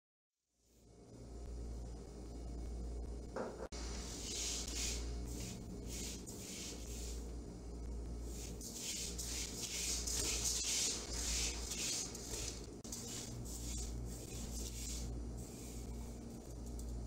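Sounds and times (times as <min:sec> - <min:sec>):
spatula stirring dry beans in pan: 0:08.3 - 0:15.1.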